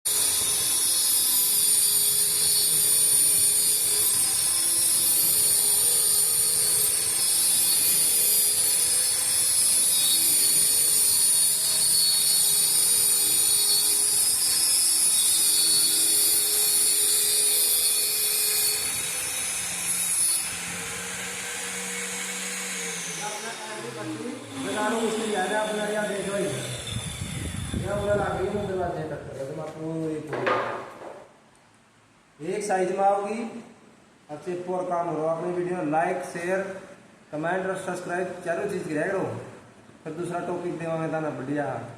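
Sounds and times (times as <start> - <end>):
power tool cutting laminate: 0.1 - 28.8.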